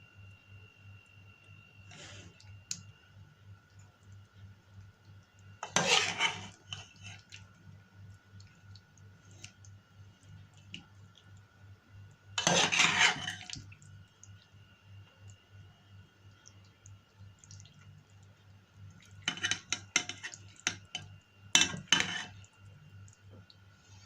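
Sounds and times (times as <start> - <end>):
cutlery scraping against dishes: 5.6 - 7.2, 12.4 - 13.5, 19.2 - 20.8, 21.6 - 22.3.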